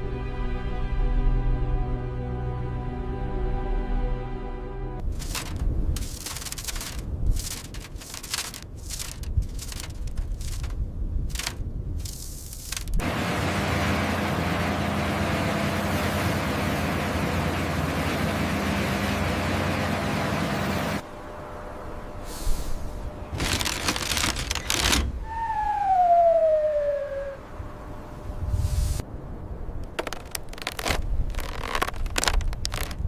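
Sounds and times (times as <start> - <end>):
squeal falling in pitch: 25.2 - 27.4.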